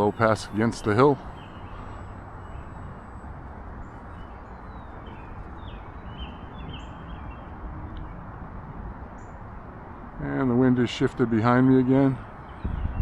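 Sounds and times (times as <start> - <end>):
bird chirping: 0.0 - 8.3, 9.1 - 9.5, 11.8 - 13.0
wind buffeting microphone: 0.0 - 13.0.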